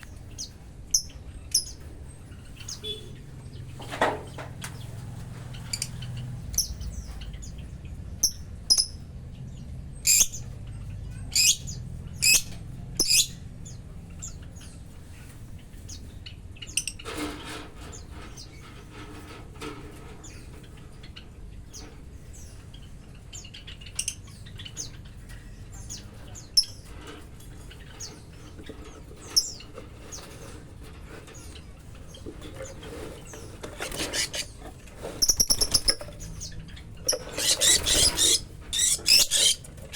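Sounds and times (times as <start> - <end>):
lovebirds chirping: 0.0 - 14.8, 31.2 - 39.9.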